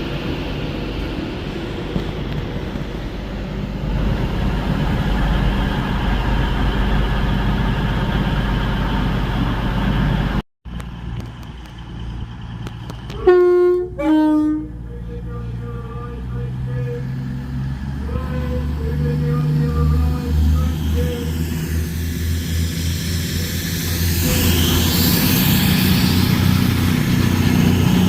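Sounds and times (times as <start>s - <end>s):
train rumbling past: 0.0s - 28.0s
two-note train horn: 13.1s - 14.8s.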